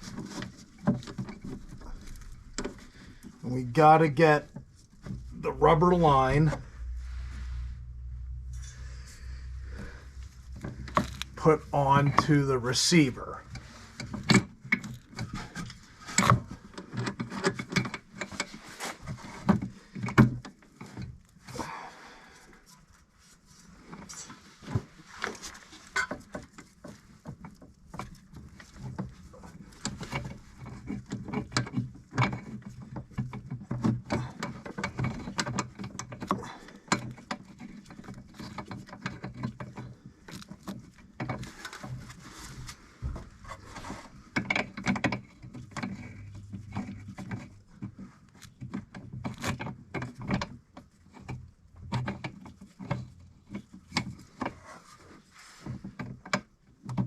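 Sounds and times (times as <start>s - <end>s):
low steady hum: 0.0s - 16.7s
clicks and taps of metal fittings: 26.0s - 42.1s.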